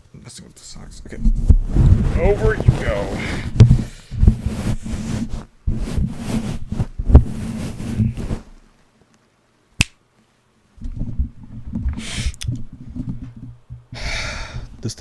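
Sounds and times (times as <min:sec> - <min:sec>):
microphone handling thumps and rustling: 0:00.9 - 0:08.7, 0:10.8 - 0:14.0
sharp click: 0:09.8 - 0:10.0.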